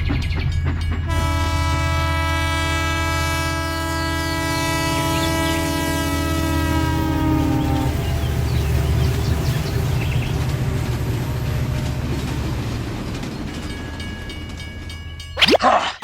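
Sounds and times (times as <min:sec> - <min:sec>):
train rumbling past: 0:00.0 - 0:15.4
train horn: 0:01.1 - 0:09.6.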